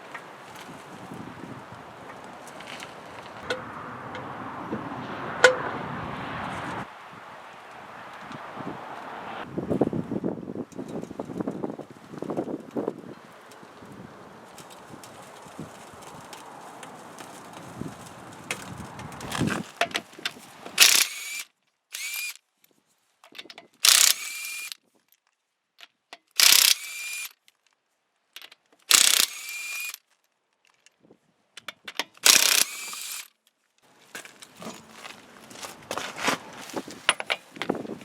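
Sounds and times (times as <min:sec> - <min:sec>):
electric ratchet motor bursts: 0:20.8 - 0:22.4, 0:23.8 - 0:24.8, 0:26.4 - 0:27.4, 0:28.9 - 0:30.0, 0:32.2 - 0:33.3
rustling handling noise: 0:33.0 - 0:38.0.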